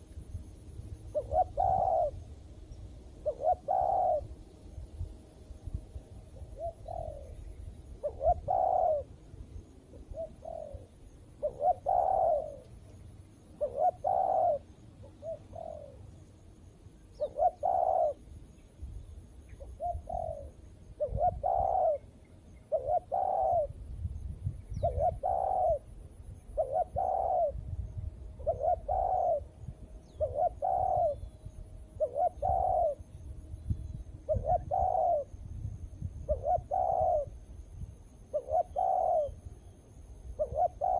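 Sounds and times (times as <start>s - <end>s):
doves cooing: 1.1s - 2.2s, 3.2s - 4.4s, 6.4s - 9.2s, 9.9s - 13.0s, 13.6s - 16.1s, 17.2s - 18.3s, 19.5s - 23.8s, 24.8s - 27.6s, 28.3s - 31.3s, 32.0s - 33.1s, 34.3s - 35.4s, 36.3s - 37.4s, 38.2s - 39.4s, 40.4s - 40.9s.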